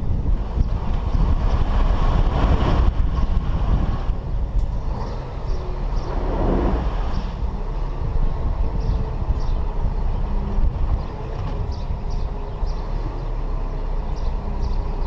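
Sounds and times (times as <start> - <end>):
diesel machinery rumbling: 0.0 - 15.0.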